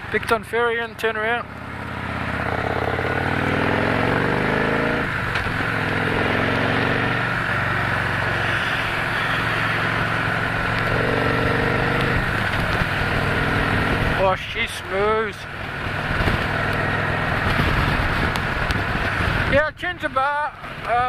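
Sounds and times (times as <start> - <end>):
motorcycle engine accelerating: 0.0 - 19.6.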